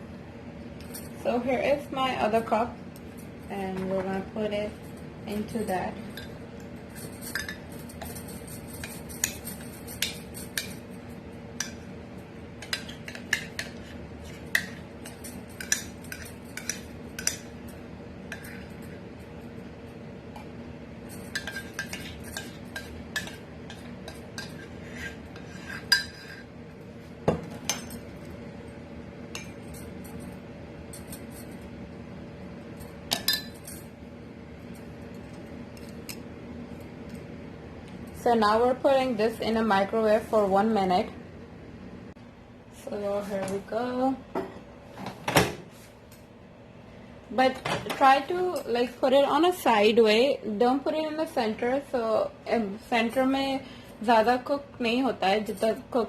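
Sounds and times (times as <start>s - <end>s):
steady low hum: 0.0s - 56.0s
spoon scraping and clinking mugs: 6.1s - 10.8s, 12.6s - 17.5s, 18.3s - 18.9s, 21.2s - 26.5s.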